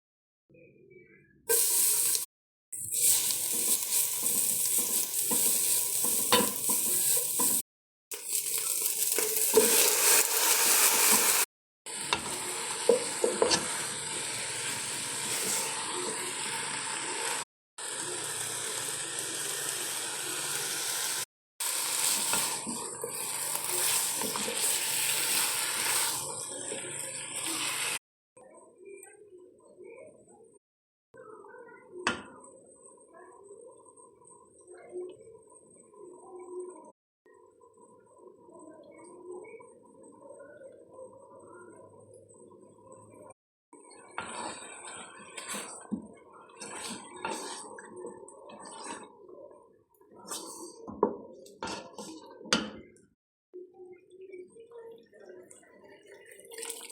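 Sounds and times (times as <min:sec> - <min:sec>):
food sizzling in a hot pan: 0:01.5 - 0:28.0.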